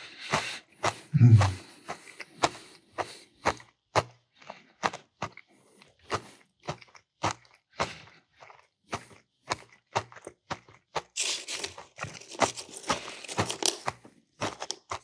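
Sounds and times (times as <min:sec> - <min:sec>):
close chewing with crunches: 0:00.2 - 0:15.0
person humming low: 0:01.2 - 0:01.6.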